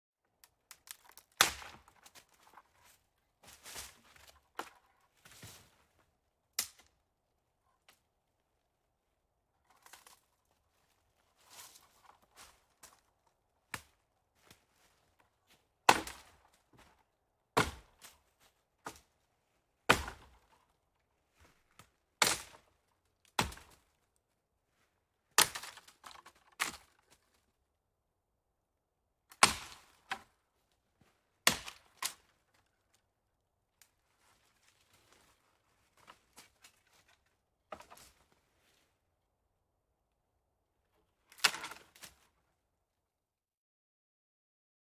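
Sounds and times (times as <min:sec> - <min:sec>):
footsteps crunching on forest floor: 0:01.7 - 0:04.4.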